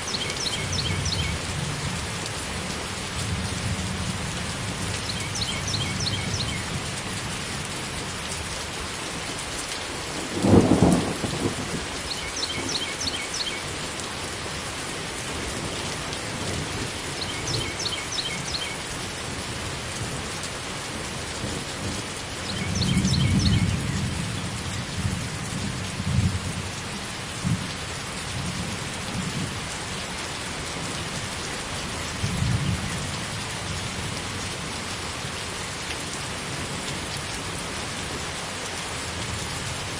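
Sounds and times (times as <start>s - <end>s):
steady rain: 0.0s - 39.9s
rumble of thunder: 10.4s - 11.9s.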